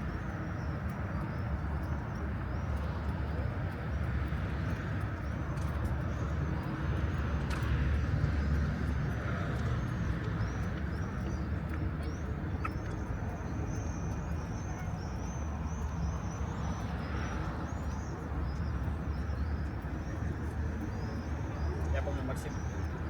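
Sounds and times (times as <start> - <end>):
traffic rumble: 0.0 - 23.0
birds chirping: 8.3 - 23.0.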